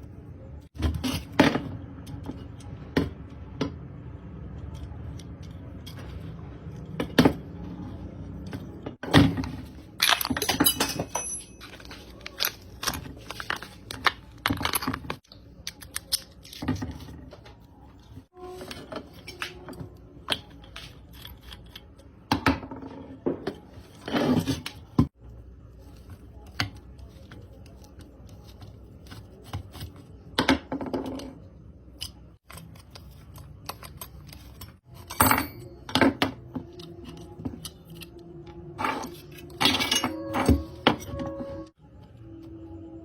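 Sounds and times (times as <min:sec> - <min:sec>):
small metal parts clinking: 0:10.0 - 0:13.6
ringing metal clanks: 0:10.6 - 0:11.8.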